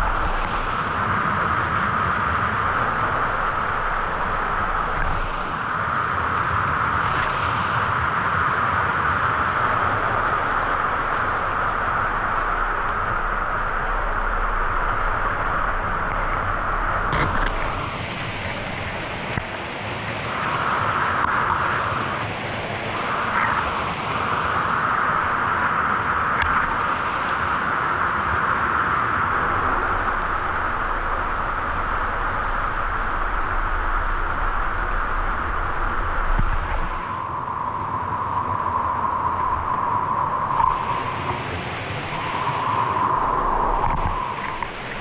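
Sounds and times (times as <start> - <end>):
waterfall rushing: 17.1 - 19.6, 21.3 - 23.9, 40.5 - 45.0.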